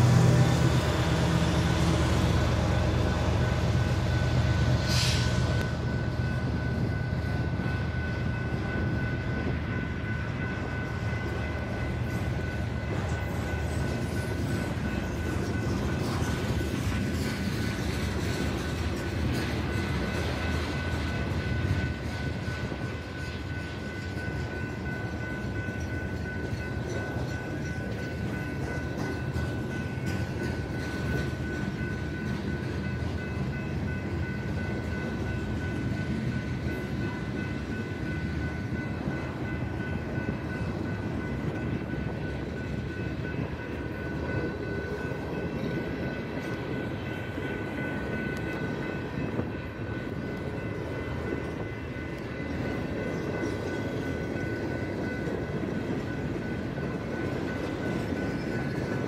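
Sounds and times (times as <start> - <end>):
train rolling past: 0.0 - 59.0.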